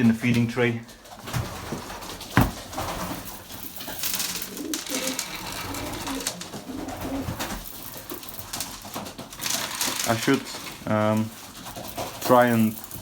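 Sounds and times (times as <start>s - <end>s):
pigeons cooing: 0.9s - 7.8s
knock: 2.4s - 2.6s
grain poured into tray rattling: 3.2s - 6.4s, 7.6s - 11.2s.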